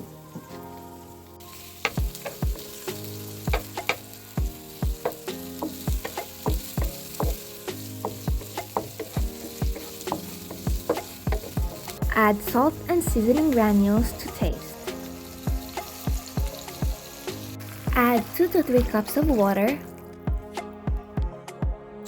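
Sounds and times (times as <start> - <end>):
vegetables sizzling in hot oil: 0.0 - 20.0
utensil knocking against pan: 3.5 - 4.0, 8.0 - 11.7.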